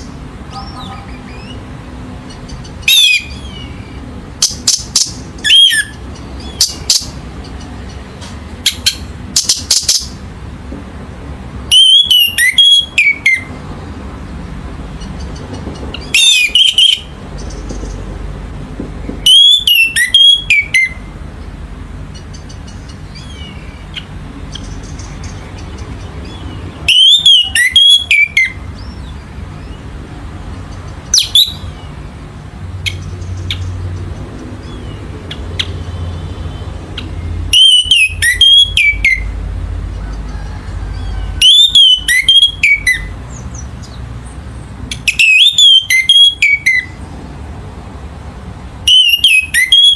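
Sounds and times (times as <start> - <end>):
thrush singing whistled notes: 2.6 - 7.2, 11.6 - 13.6, 16.0 - 17.2, 19.2 - 21.1, 26.2 - 29.9, 31.1 - 32.0, 35.6 - 39.4, 40.6 - 44.0, 44.9 - 47.0, 48.8 - 49.9.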